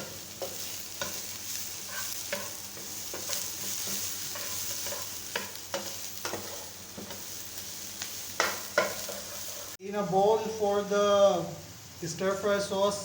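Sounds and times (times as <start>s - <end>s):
utensil scraping a pan: 0.0s - 7.3s, 8.4s - 9.8s
vegetables sizzling in hot oil: 0.0s - 9.8s.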